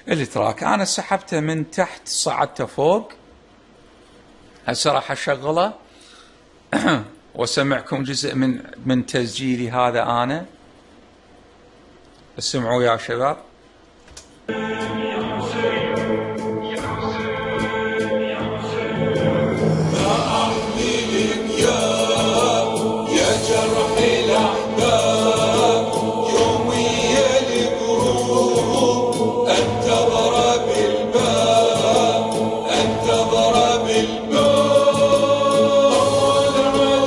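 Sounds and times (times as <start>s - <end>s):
chanted vocals with choir: 14.5s - 37.0s
steady beat: 14.5s - 37.0s
synth pads and bass: 14.5s - 37.0s.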